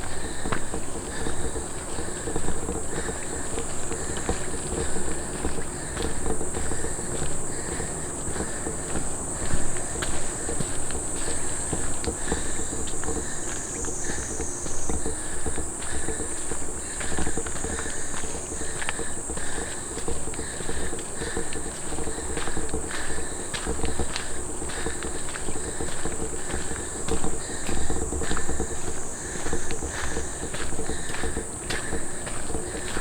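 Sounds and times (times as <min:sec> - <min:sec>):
footsteps crunching on dirt path: 0:00.0 - 0:33.0
high-pitched insect chorus: 0:00.0 - 0:33.0.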